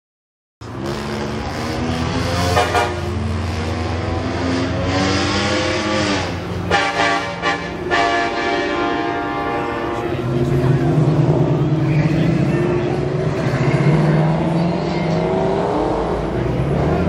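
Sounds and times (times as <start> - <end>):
car engine revving: 0.6 - 8.0, 8.7 - 17.0.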